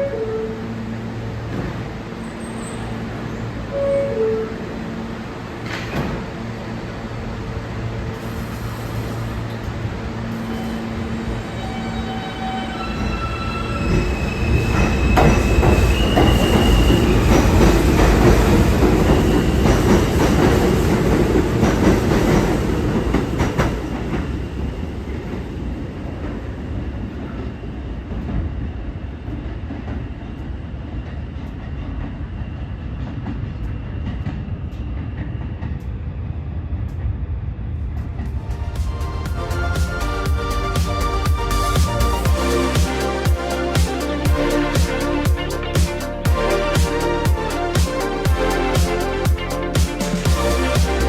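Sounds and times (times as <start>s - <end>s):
subway train rumbling wheels: 0.0s - 51.0s
train motor whine: 1.0s - 21.6s.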